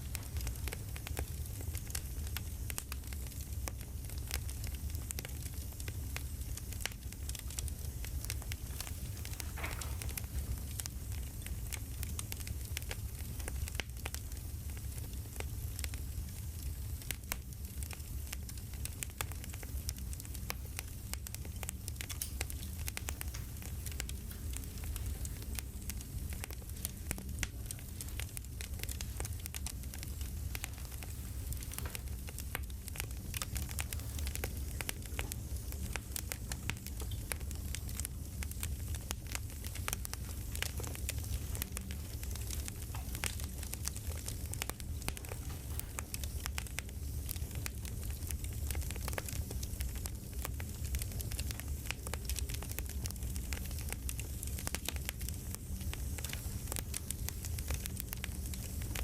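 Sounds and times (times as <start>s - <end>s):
campfire crackling: 0.0s - 59.0s.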